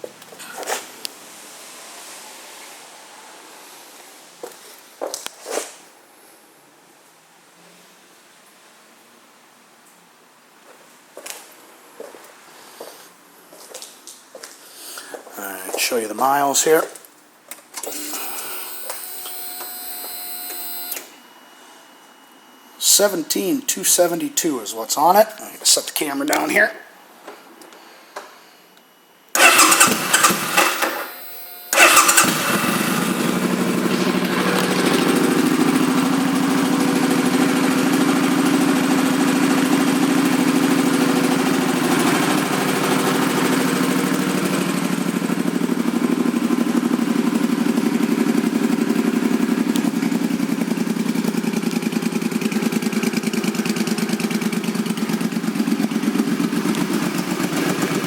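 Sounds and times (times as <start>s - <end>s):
motorcycle engine idling: 29.4s - 30.8s, 31.8s - 58.0s
starter motor cranking: 29.4s - 36.0s.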